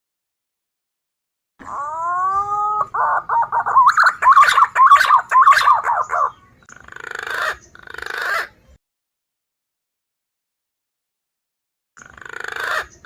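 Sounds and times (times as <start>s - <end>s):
harsh buzzing bird calls: 1.6s - 8.6s, 12.0s - 13.0s
pigeon whistling calls: 1.7s - 6.5s.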